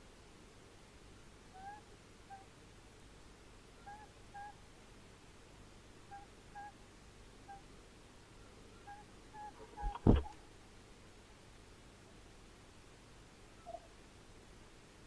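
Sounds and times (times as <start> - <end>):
owl calling: 1.5 - 2.5, 3.8 - 4.6, 6.1 - 6.8, 7.4 - 7.6, 8.8 - 10.4, 13.6 - 13.9.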